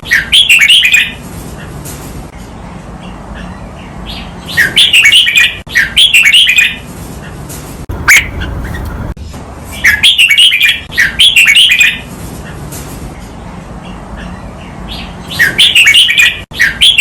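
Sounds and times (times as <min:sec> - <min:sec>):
steady low hum: 0:07.8 - 0:09.8
bulbul warbling song: 0:07.9 - 0:09.1.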